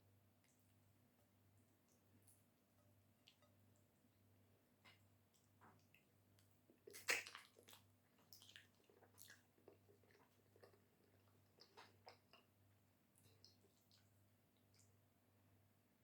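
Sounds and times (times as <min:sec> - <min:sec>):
wet chewing mouth sounds: 0:06.7 - 0:12.5.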